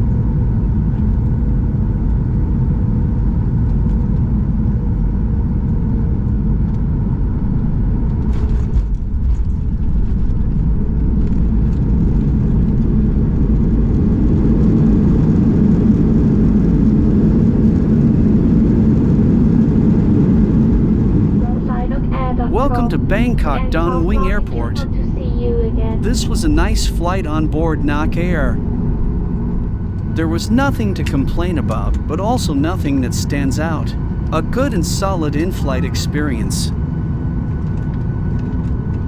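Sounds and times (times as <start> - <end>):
jet engines rumbling: 22.5 - 36.7.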